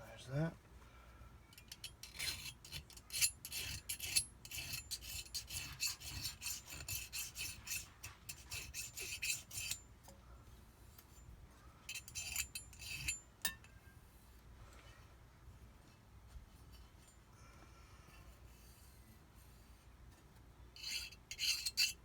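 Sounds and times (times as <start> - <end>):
file rasping on metal: 1.6 - 9.8, 11.9 - 13.6, 20.8 - 22.0.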